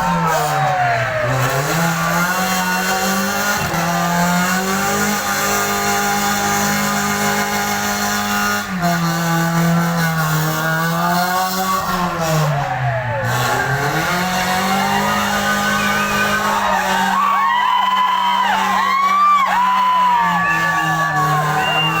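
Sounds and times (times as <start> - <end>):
racing car engines passing: 0.0 - 22.0.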